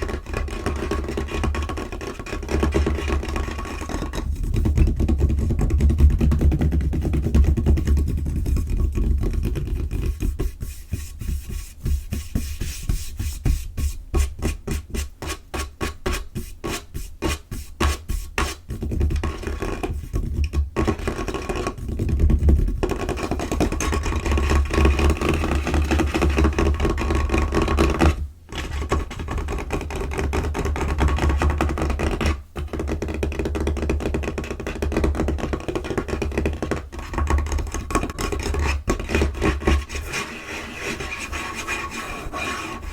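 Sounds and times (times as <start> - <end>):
scratching and rubbing on surface: 0.0 - 6.0, 6.9 - 22.0, 35.6 - 42.9.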